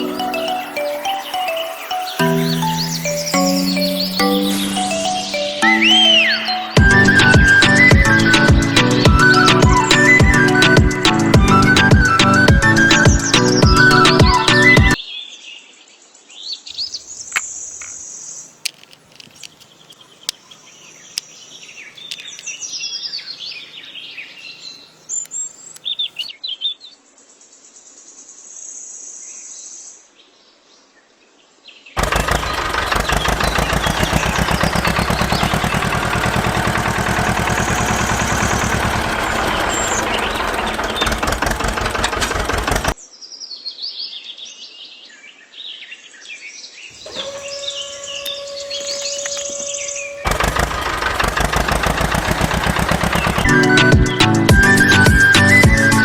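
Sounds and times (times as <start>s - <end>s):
small birds chirping: 0.0s - 15.4s, 16.3s - 28.8s, 31.8s - 56.0s
harsh rattling mechanical noise: 6.8s - 14.9s, 32.0s - 43.0s, 47.0s - 56.0s.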